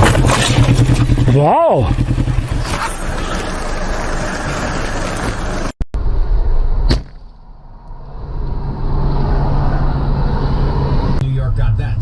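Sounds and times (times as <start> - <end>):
car road and engine noise: 0.0 - 12.0
sharp knock: 6.8 - 7.3.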